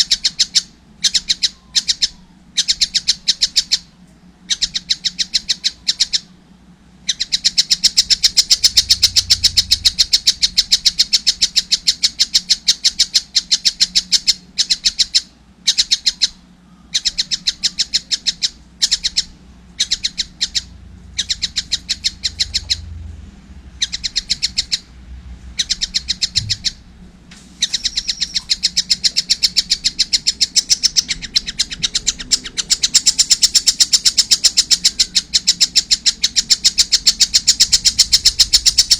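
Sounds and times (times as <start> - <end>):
kingfisher chattering calls: 7.0 - 23.1, 23.7 - 26.9, 27.6 - 38.9.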